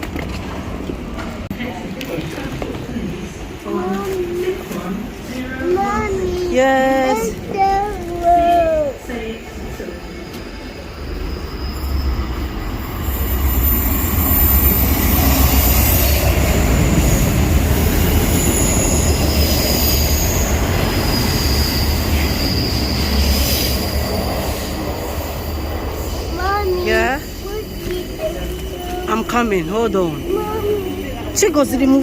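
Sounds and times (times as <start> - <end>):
train rumbling: 0.0 - 32.0
wheels squealing on rails: 8.2 - 32.0.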